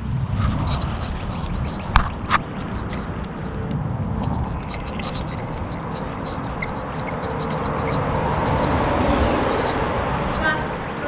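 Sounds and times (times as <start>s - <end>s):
low outdoor rumble: 0.0s - 11.0s
small birds chirping: 4.4s - 10.6s.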